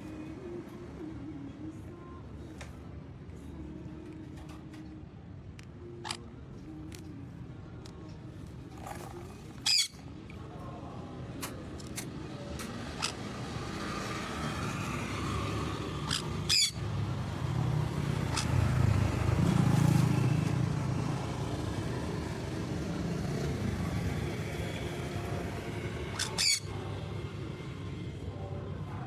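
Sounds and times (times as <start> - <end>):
parrot squawks: 6.0 - 6.2, 9.6 - 10.0, 12.9 - 13.3, 16.0 - 16.9, 18.2 - 18.6, 26.1 - 26.8.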